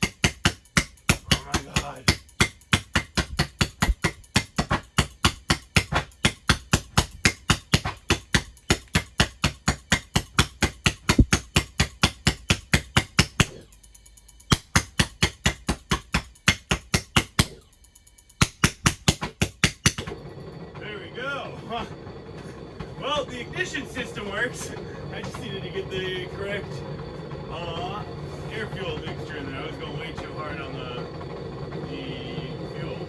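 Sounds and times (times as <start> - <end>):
spark igniter clicking rapidly: 0.0 - 20.0.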